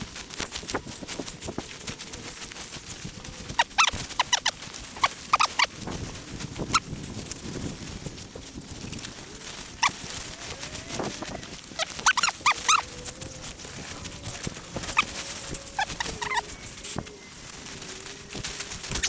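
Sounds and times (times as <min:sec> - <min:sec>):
footsteps through vegetation: 0:00.0 - 0:19.0
dog whimpering: 0:09.8 - 0:17.4.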